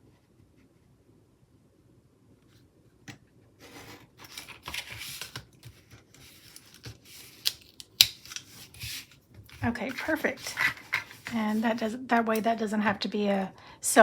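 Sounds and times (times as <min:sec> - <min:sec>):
scissors cutting paper: 0:04.2 - 0:12.4.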